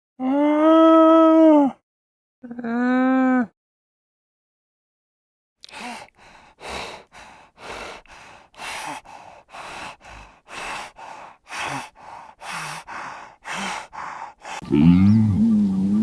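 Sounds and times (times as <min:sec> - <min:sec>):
animal breathing heavily: 0:05.7 - 0:14.8.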